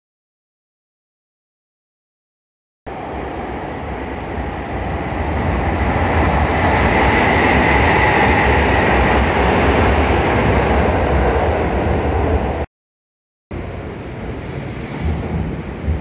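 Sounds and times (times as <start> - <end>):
electric train wheels on rails: 2.9 - 12.6, 13.6 - 16.0.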